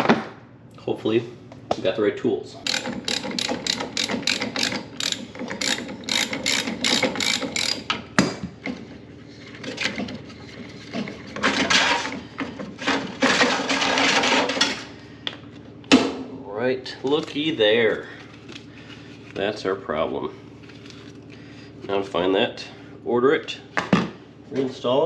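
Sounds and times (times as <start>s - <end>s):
ratchet wrench clicking: 2.6s - 7.9s.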